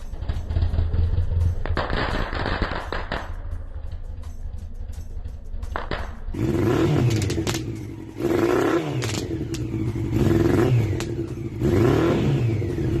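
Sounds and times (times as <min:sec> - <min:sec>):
motorcycle engine revving: 0:00.0 - 0:13.0
sharp exhaust pops: 0:00.5 - 0:04.0, 0:05.6 - 0:11.7.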